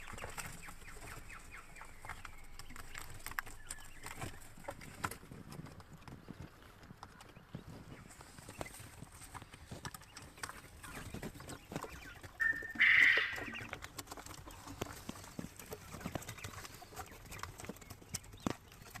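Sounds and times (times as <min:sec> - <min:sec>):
quail pecking taps and clicks: 0:00.0 - 0:19.0
quail call: 0:12.4 - 0:13.7.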